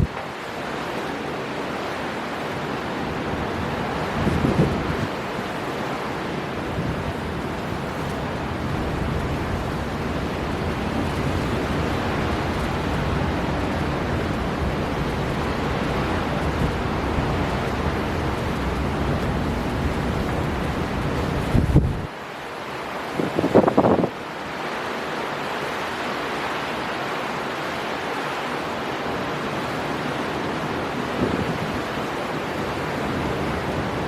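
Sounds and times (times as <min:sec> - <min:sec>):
strong wind blowing: 0:00.0 - 0:00.2, 0:02.9 - 0:22.1, 0:23.1 - 0:24.2, 0:30.2 - 0:34.0
heavy surf: 0:00.0 - 0:34.0.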